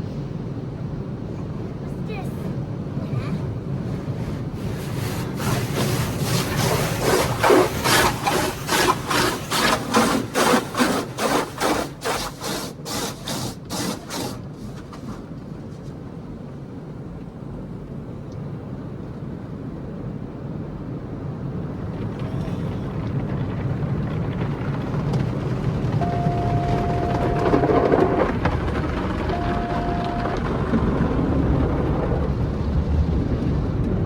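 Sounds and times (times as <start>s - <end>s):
car wash brushes swishing: 3.8s - 15.8s, 26.0s - 28.5s
machinery hum: 25.6s - 34.0s.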